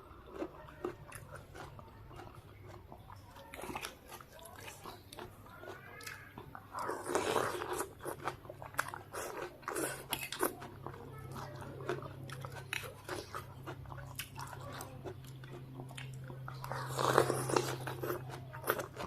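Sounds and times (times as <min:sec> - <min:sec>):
crunchy chewing: 0:00.0 - 0:19.0.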